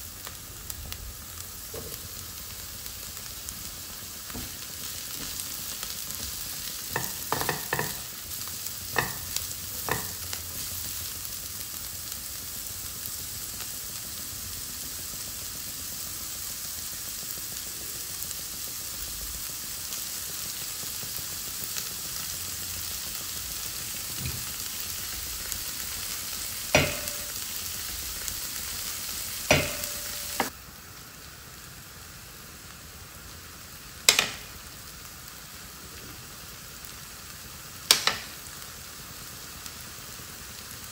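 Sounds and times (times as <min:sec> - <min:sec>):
vegetables sizzling in oil: 0:00.0 - 0:40.9
spatula knocking against pan: 0:07.0 - 0:08.0, 0:09.0 - 0:10.2, 0:26.8 - 0:27.3, 0:29.5 - 0:30.5.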